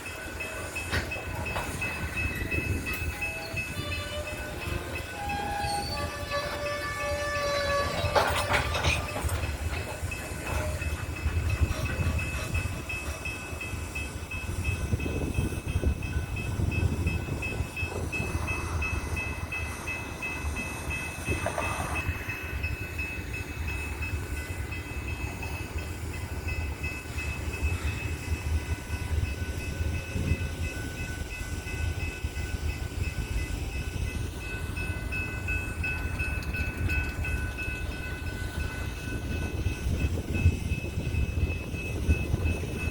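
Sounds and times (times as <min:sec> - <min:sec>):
train wheels rumbling: 0:00.0 - 0:42.9
train horn blast: 0:03.3 - 0:08.6.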